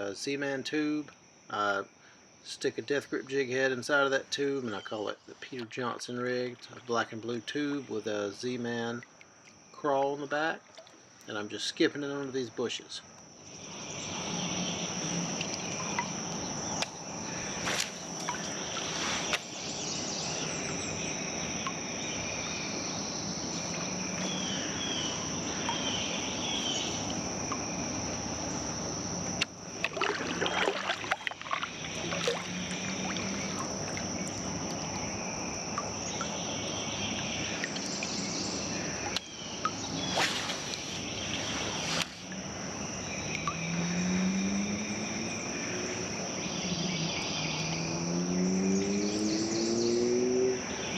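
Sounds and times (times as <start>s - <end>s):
high-pitched insect drone: 13.3s - 50.9s.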